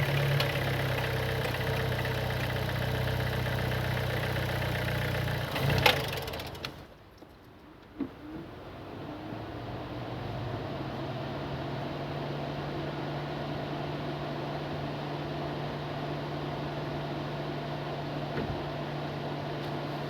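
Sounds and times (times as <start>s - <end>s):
car engine humming: 0.0s - 6.8s.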